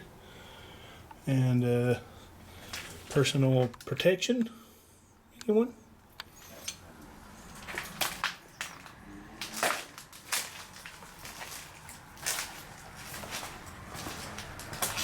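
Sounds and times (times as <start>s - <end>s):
footsteps crunching over debris: 2.6s - 3.7s, 7.5s - 15.0s.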